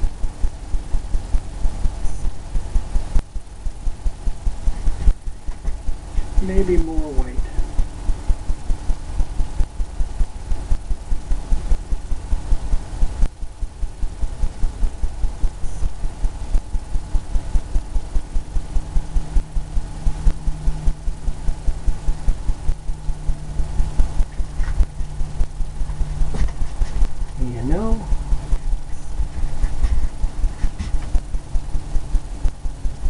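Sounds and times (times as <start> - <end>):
paintbrush dabbing on canvas: 25.8 - 31.1.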